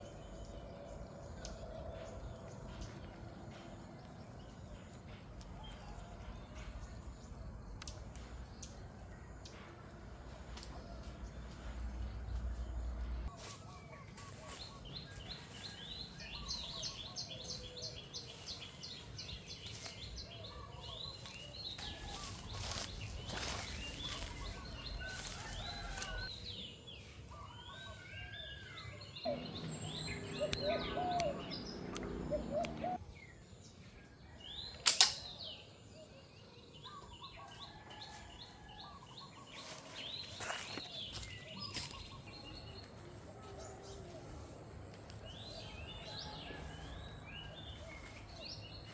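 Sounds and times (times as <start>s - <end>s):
small birds chirping: 0.0s - 37.8s, 38.5s - 48.9s
sharp snap: 34.8s - 35.3s.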